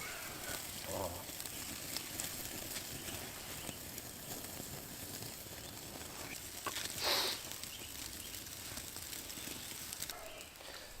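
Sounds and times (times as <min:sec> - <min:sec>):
campfire crackling: 0:00.0 - 0:11.0
fire hissing: 0:00.0 - 0:11.0
small pops: 0:06.2 - 0:09.0.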